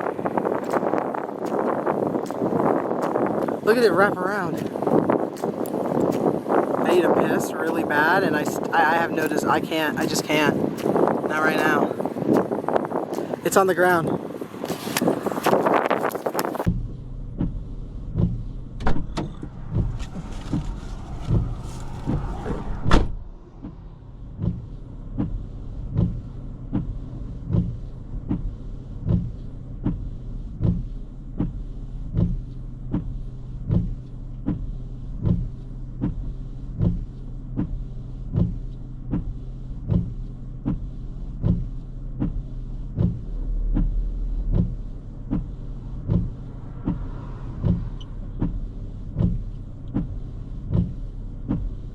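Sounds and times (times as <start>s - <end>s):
car engine and road hum: 0.0s - 51.9s
sharp knock: 21.3s - 23.8s
regular click-thump: 24.4s - 42.4s, 43.0s - 51.7s.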